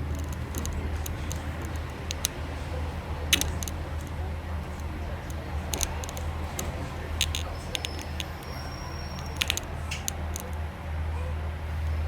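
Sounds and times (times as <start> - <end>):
clicks and rattles: 0.0 - 10.6
faint high squeal: 7.4 - 10.3.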